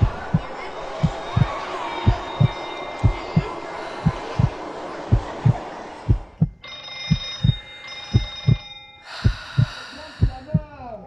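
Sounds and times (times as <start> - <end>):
heartbeat thumping: 0.0 - 11.0
high ringing tone: 6.6 - 9.1.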